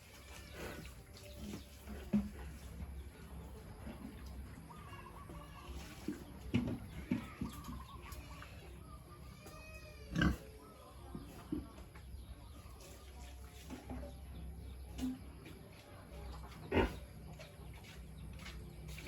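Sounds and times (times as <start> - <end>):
pigs grunting: 10.0 - 10.6, 16.5 - 17.2.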